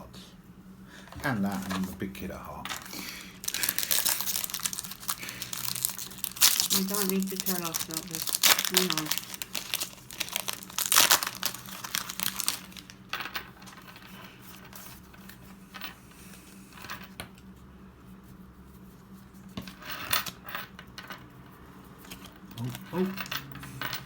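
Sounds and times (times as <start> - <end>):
foil wrapper crinkling and tearing: 2.9 - 13.0.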